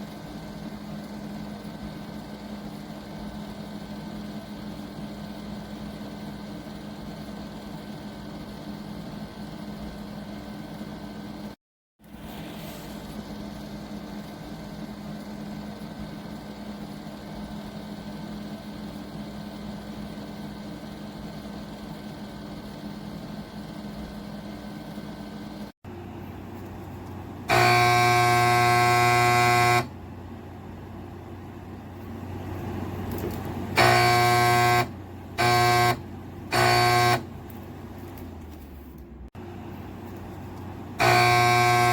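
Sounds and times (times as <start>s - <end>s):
air conditioner humming: 12.4s - 41.9s
loud buzzing tone: 27.4s - 30.0s, 33.7s - 37.4s, 40.9s - 41.9s.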